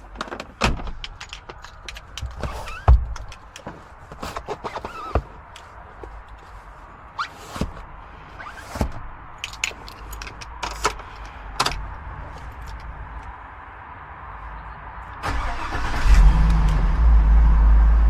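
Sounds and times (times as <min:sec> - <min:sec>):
clicks and knocks inside car: 0:00.0 - 0:06.4, 0:08.5 - 0:12.8.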